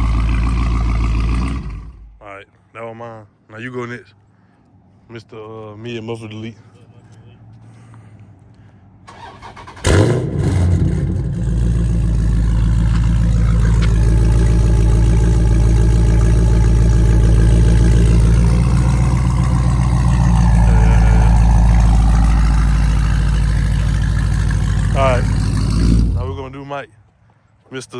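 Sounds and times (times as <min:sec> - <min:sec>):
car engine starting and idling: 0:00.0 - 0:02.2, 0:09.0 - 0:26.6.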